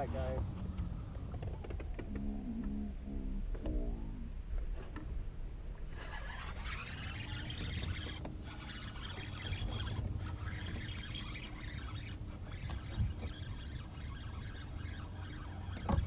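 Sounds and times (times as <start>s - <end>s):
low rumble: 0.0s - 6.1s
fishing reel whirring: 5.8s - 16.0s.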